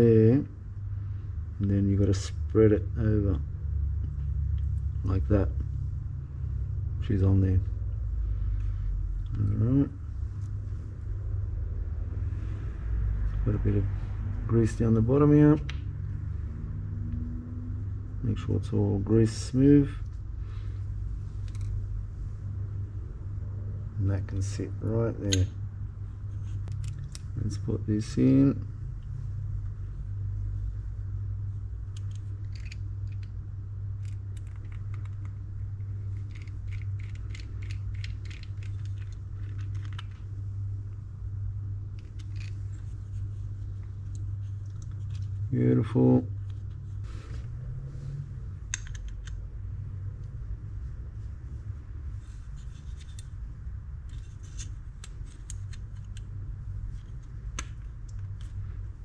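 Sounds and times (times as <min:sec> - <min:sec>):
steady low hum: 0:00.0 - 0:59.0
small metal parts clicking: 0:26.6 - 0:27.3, 0:31.9 - 0:33.4, 0:34.0 - 0:35.4, 0:36.0 - 0:40.2, 0:42.0 - 0:43.0, 0:48.7 - 0:49.4, 0:54.0 - 0:56.3.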